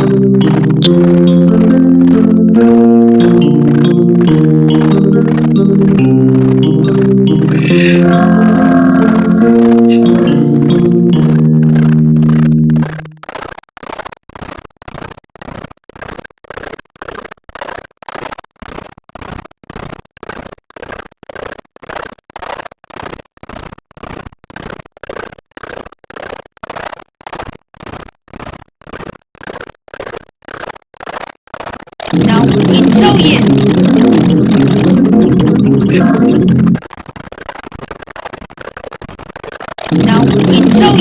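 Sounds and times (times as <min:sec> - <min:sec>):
bass and guitar music: 0:00.0 - 0:13.2, 0:32.2 - 0:36.8, 0:39.9 - 0:41.0
short noisy pulses: 0:06.0 - 0:13.2, 0:32.0 - 0:36.8.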